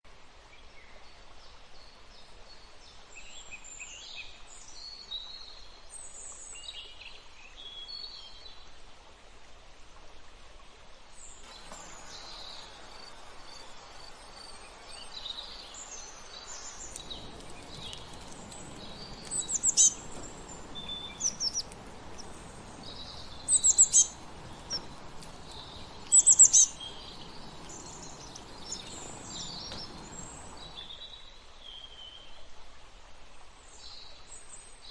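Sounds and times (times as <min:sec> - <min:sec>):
wild birds chirping and whistling: 0:11.4 - 0:31.0.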